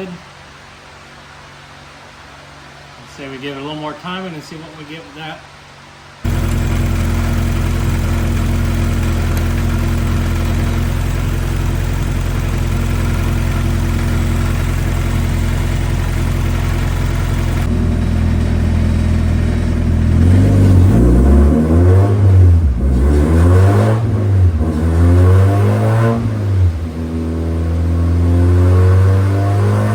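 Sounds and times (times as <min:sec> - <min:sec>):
car engine running steadily: 0:06.2 - 0:29.9.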